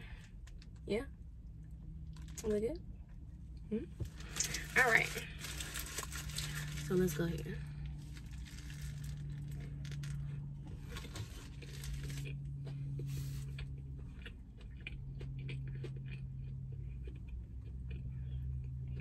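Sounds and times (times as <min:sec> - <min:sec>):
low hum: 0:00.0 - 0:19.0
biting and chewing crunchy sandwich: 0:04.1 - 0:06.9, 0:07.6 - 0:19.0.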